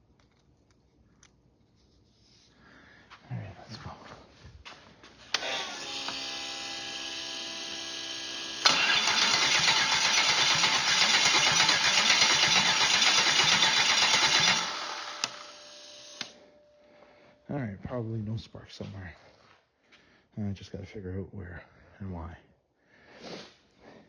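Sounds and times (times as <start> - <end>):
starter cranking engine: 5.3 - 6.2, 7.0 - 16.3.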